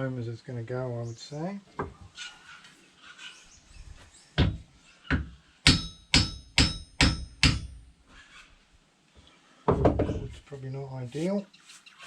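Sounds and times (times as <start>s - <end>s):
metallic hammer blows: 5.7s - 7.8s.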